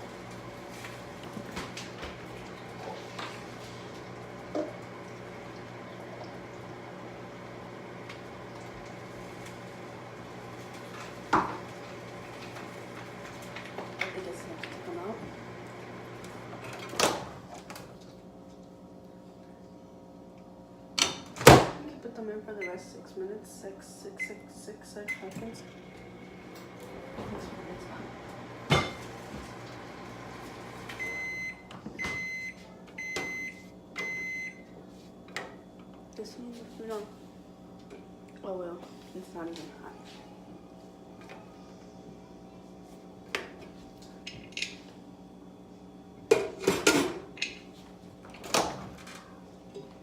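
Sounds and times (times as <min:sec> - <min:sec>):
kitchen appliance humming: 0:00.0 - 0:50.0
high microwave beeps: 0:22.6 - 0:22.9, 0:24.1 - 0:25.4, 0:30.9 - 0:34.8.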